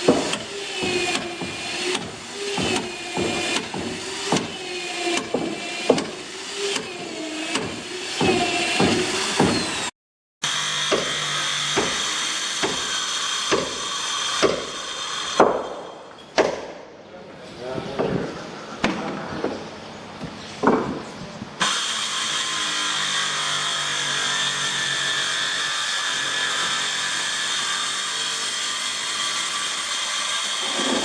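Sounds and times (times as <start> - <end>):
power tool motor whine: 0.0 - 15.4, 21.6 - 23.8.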